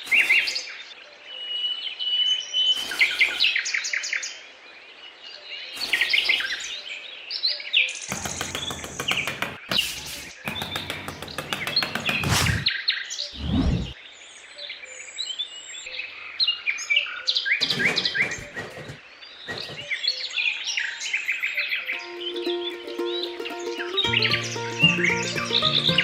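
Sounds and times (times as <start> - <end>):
small birds chirping: 1.9 - 26.0
loud rapid rattling clicks: 8.1 - 9.6.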